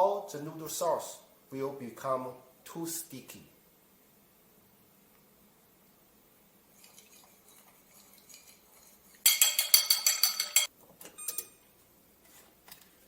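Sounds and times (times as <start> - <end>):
utensil whisking in a bowl: 6.6 - 10.7.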